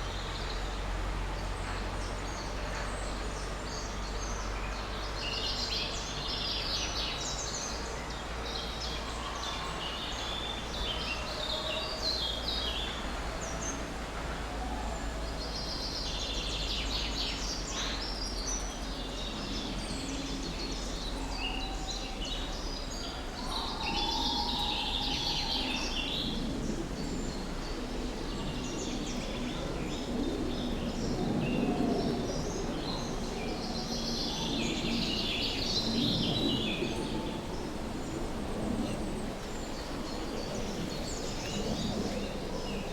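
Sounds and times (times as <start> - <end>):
outdoor background noise: 0.0 - 42.9
songbirds chirping and singing: 14.8 - 42.9.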